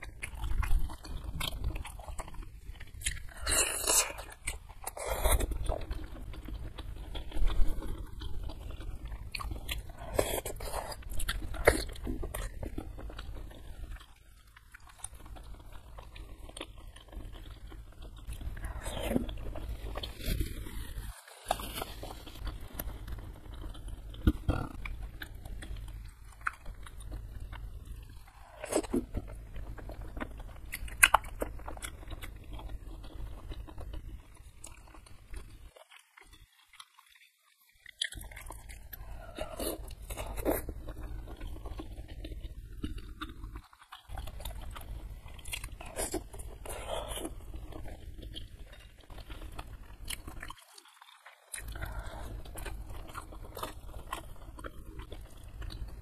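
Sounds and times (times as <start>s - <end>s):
chewing and biting food: 0.0s - 56.0s.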